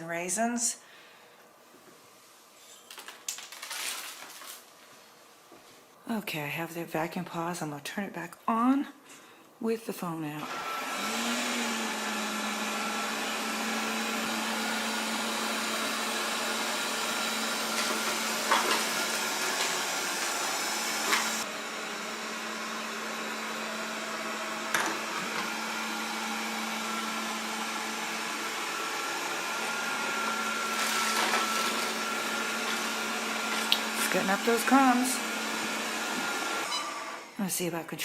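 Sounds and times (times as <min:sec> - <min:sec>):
robot vacuum humming: 0:10.4 - 0:37.3.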